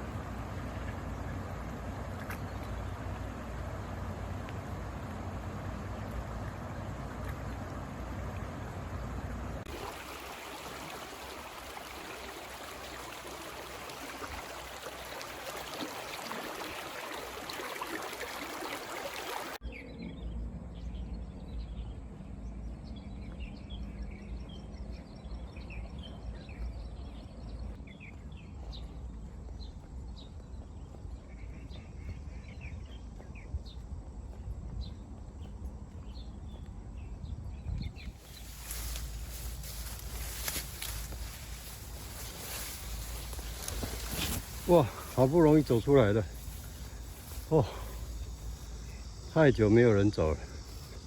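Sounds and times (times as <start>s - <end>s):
creek water rushing: 0.0s - 19.6s, 38.2s - 51.0s.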